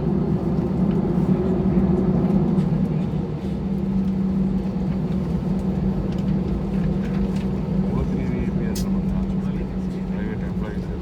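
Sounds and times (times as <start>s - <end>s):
jet engines droning in cabin: 0.0s - 11.0s.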